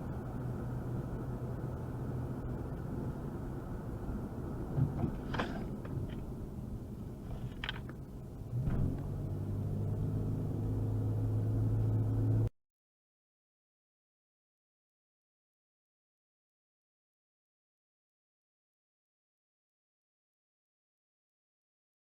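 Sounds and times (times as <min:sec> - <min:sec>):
car engine and road rumble: 0:00.0 - 0:12.5
low engine hum: 0:00.0 - 0:12.5.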